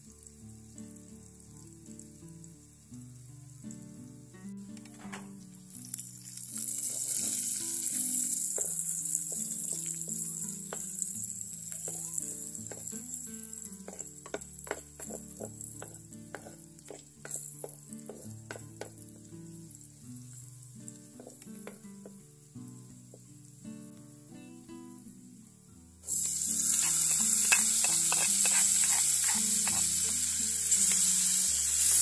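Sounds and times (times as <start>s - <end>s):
food sizzling in hot oil: 0.0s - 4.4s, 5.4s - 23.8s, 26.0s - 32.0s
wooden spoon knocking on pot: 11.7s - 12.9s, 13.8s - 19.0s.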